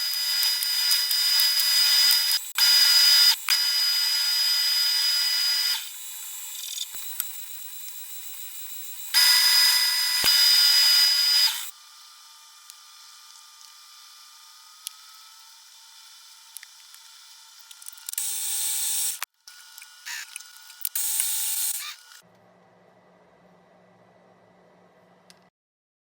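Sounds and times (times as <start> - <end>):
metal cutting machine whine: 0.0 - 22.2.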